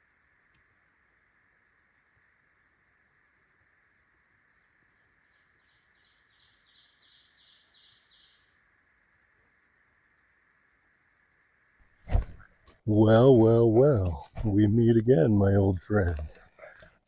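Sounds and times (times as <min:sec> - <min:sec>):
songbird singing: 0:00.0 - 0:11.2.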